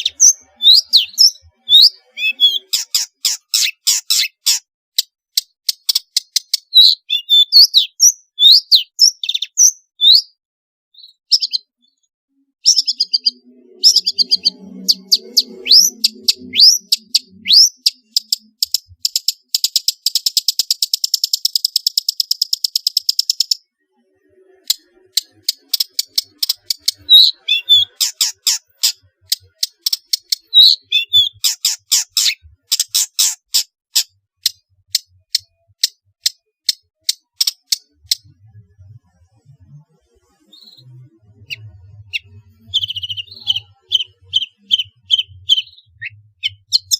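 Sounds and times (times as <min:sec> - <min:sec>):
bird singing high chirps: 0:00.0 - 0:23.7, 0:24.5 - 0:38.4, 0:40.2 - 0:46.9
bird buzzy rattle: 0:31.4 - 0:34.1.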